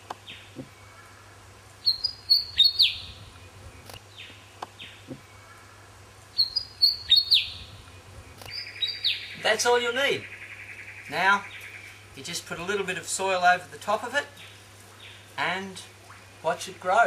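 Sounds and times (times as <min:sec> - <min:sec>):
bird chattering song: 0:01.8 - 0:05.1, 0:06.4 - 0:12.5.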